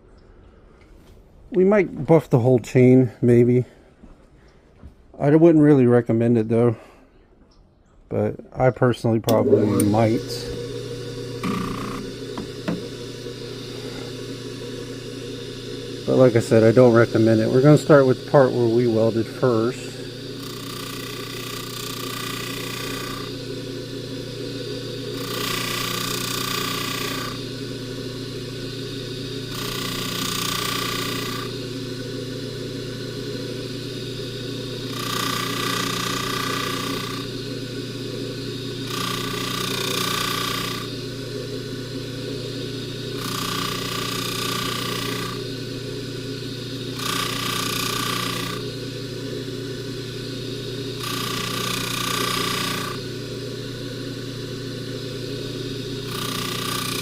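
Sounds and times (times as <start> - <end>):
buffer motor humming: 9.1 - 57.0
chain whirring on buffing wheel: 9.4 - 57.0.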